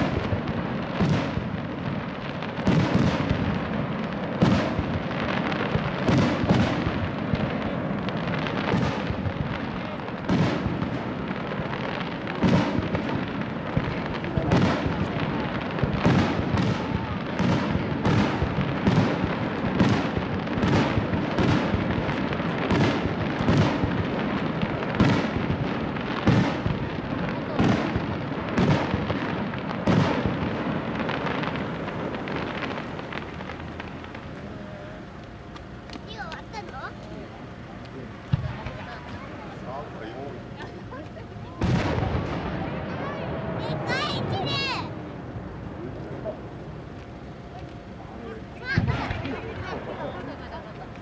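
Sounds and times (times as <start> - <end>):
firework shells booming: 0.0 - 51.0
rolling rumble of echoes: 0.0 - 51.0.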